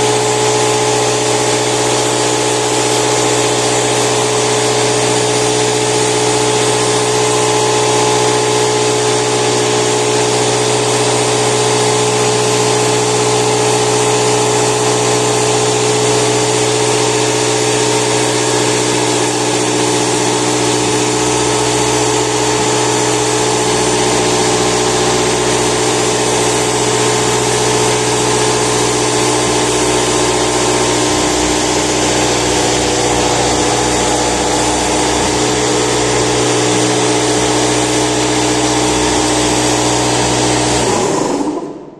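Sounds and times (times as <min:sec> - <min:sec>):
compressor droning: 0:00.0 - 0:41.9.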